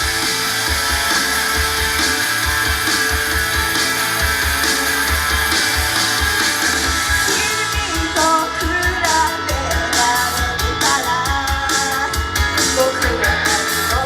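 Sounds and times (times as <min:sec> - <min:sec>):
drum beat: 0:00.0 - 0:14.0
electric guitar: 0:00.0 - 0:14.0
person singing: 0:07.3 - 0:14.0.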